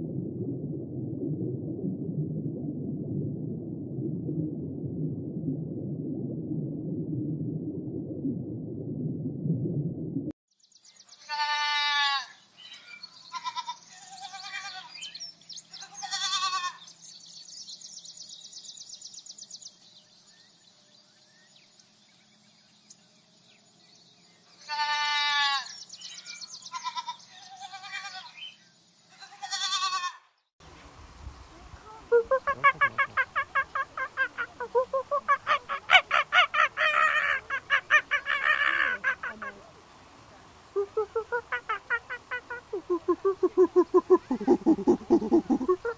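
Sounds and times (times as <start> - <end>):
low rumble: 0.0 - 10.3.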